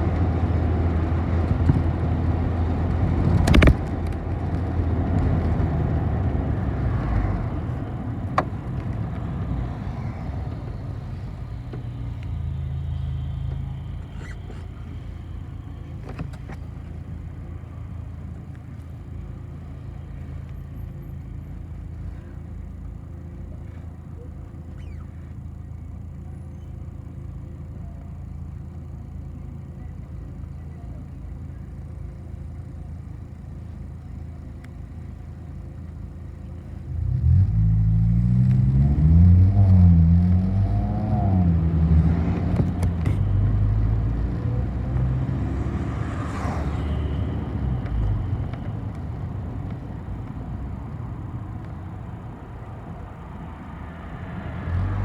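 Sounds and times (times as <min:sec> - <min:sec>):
bus engine rumbling and revving: 0:00.0 - 0:55.0.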